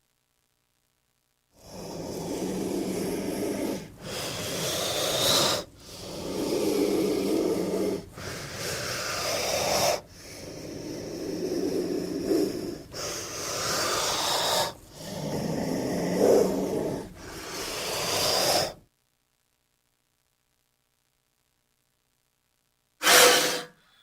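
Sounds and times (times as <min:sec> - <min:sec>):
snake hissing: 0:01.6 - 0:18.8, 0:23.0 - 0:23.8.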